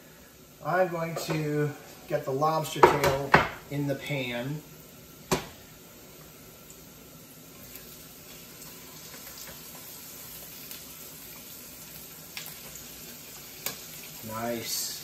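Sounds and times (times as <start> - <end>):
food sizzling in a skillet: 0.0 - 15.0.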